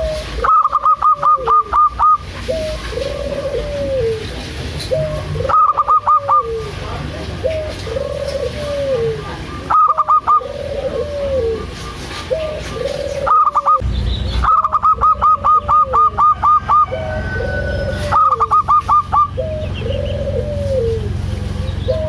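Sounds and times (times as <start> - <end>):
doves cooing: 0.0 - 13.8, 14.4 - 22.0
sharp high bird notes: 13.2 - 16.9.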